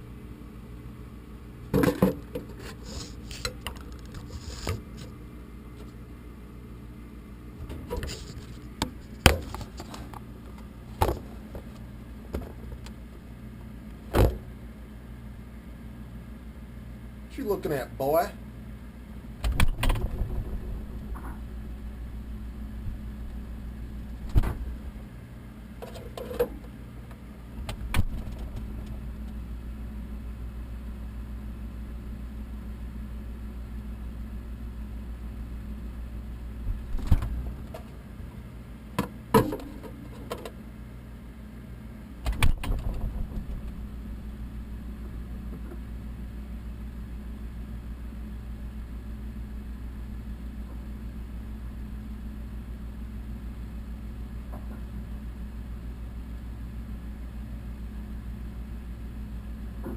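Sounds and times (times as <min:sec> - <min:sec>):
short knocks and rattles: 0:19.4 - 0:21.5, 0:42.3 - 0:44.3
low engine hum: 0:19.5 - 0:25.1.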